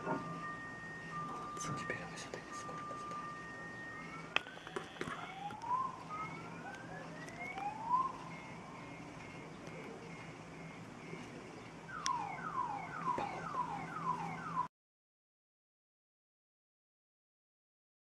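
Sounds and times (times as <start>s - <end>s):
car alarm cycling tones: 0.0s - 9.0s, 11.9s - 14.7s.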